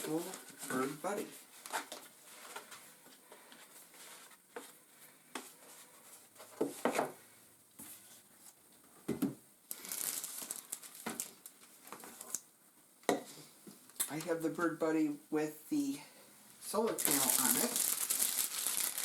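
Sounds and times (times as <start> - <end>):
packaging crinkling: 9.7 - 12.4, 17.0 - 19.0.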